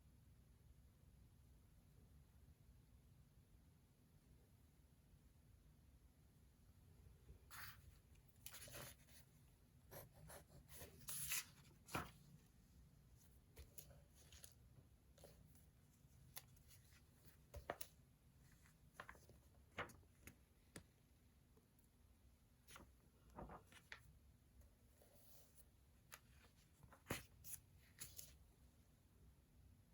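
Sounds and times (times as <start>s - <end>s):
pen scratching on paper: 9.9s - 11.4s.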